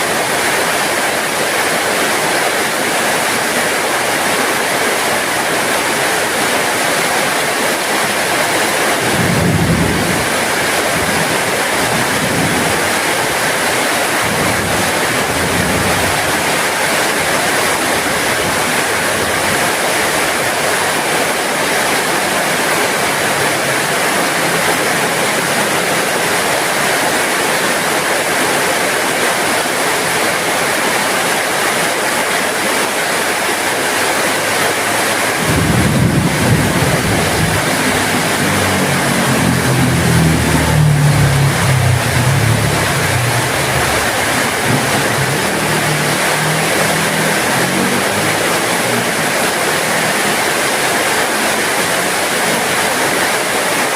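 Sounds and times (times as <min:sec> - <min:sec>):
heavy rain falling: 0:00.0 - 0:53.9
low rumble: 0:35.4 - 0:47.4.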